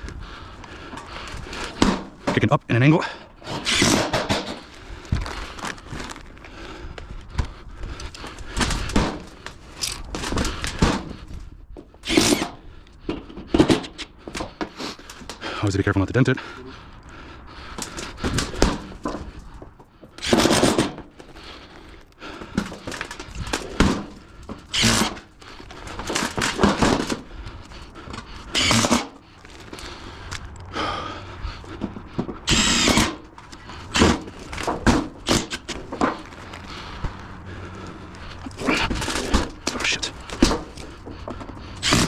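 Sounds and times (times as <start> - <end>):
power drill driving screws into metal: 3.5 - 4.6, 12.0 - 12.6, 20.2 - 21.0, 24.7 - 25.2, 28.5 - 29.1, 32.5 - 33.2, 41.8 - 42.0.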